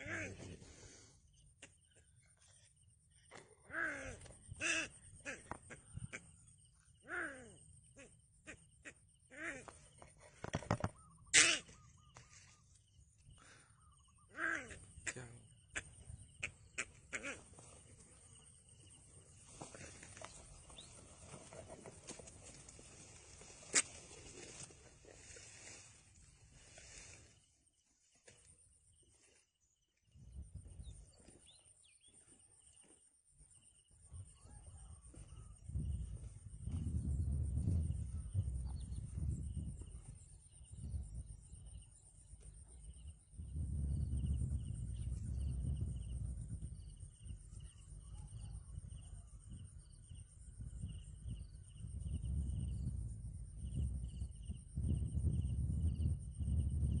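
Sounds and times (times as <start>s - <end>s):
low rumble of wind: 2.8s - 29.4s, 30.0s - 57.0s
wind buffeting microphone: 30.1s - 32.1s, 34.1s - 42.0s, 42.8s - 57.0s.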